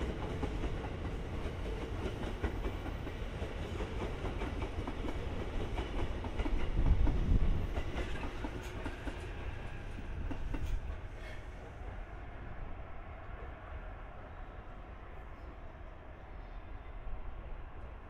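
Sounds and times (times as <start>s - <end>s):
train low rumble: 0.0s - 18.0s.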